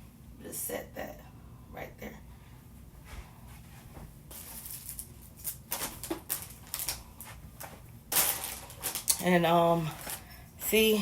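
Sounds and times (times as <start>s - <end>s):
soft rustle: 3.0s - 9.1s.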